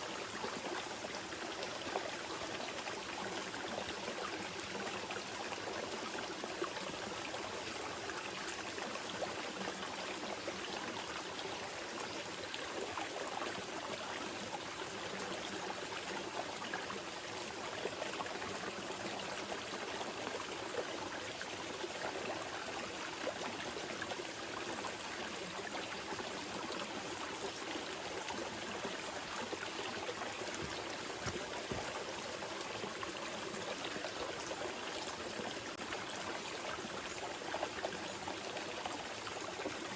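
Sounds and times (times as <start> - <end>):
river water rushing and trickling: 0.0 - 39.9.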